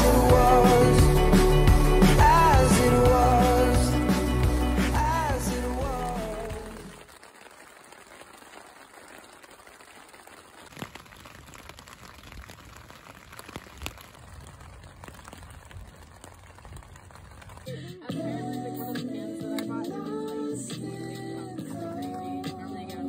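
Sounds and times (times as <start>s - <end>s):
rain pattering on a tent: 4.9s - 18.0s.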